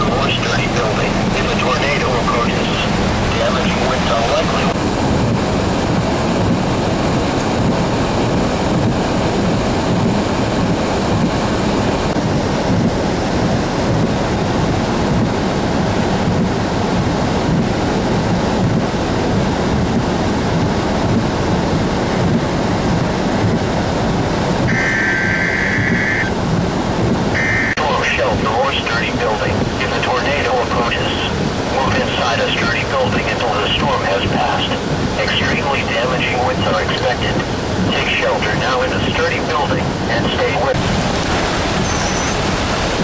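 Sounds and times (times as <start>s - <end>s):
strong wind on microphone: 0.0s - 43.0s
short steady tone: 24.7s - 26.3s, 27.4s - 27.8s.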